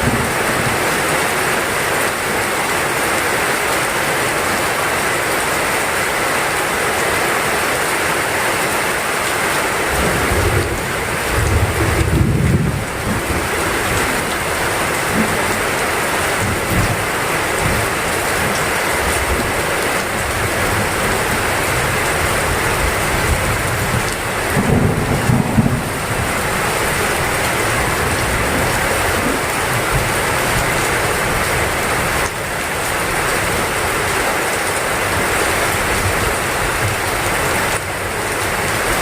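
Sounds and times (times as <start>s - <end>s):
heavy rain falling: 0.0s - 39.0s
low rumbles of thunder: 10.0s - 14.5s, 23.1s - 30.1s.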